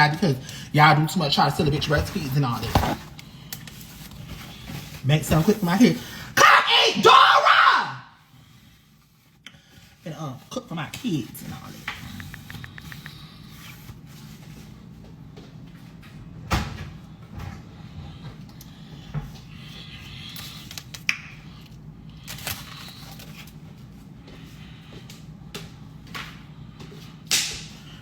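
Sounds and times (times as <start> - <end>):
low steady hum: 8.0 - 28.0.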